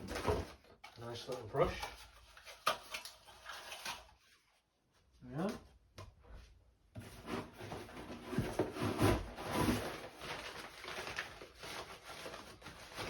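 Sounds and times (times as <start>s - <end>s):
packaging rustling and knocking: 7.0s - 13.0s.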